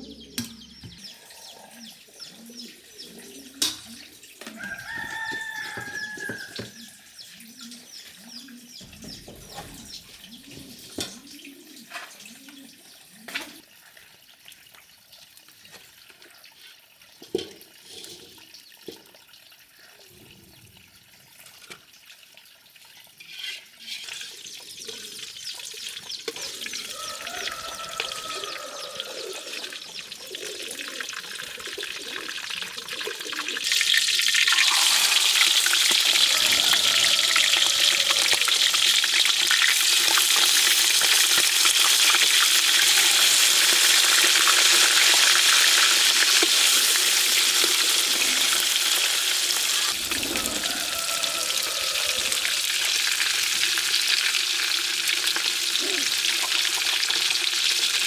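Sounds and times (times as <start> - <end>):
rooster crowing: 4.5 - 7.1, 26.8 - 29.9, 34.5 - 39.3, 49.9 - 53.6
chickens clucking: 26.3 - 53.8.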